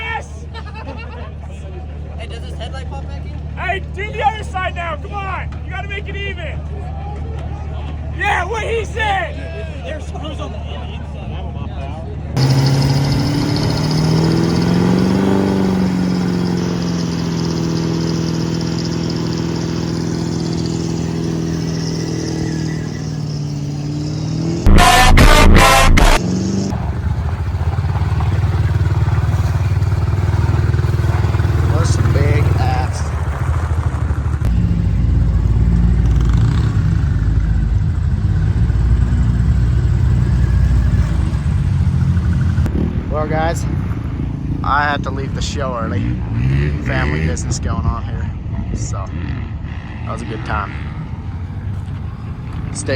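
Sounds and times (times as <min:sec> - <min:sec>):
diesel truck engine running: 0:12.4 - 0:45.9.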